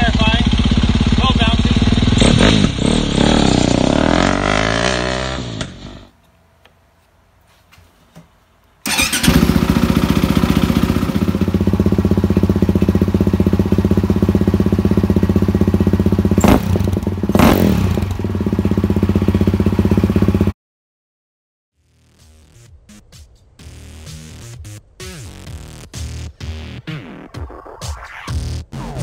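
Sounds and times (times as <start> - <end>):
dirt bike engine idling: 0.0 - 5.8, 8.8 - 20.5.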